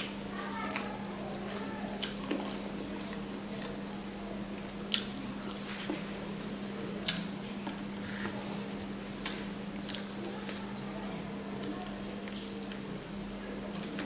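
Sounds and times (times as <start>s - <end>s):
wet chewing and smacking: 0.0s - 5.6s, 9.2s - 14.0s
steady low hum: 0.0s - 14.0s.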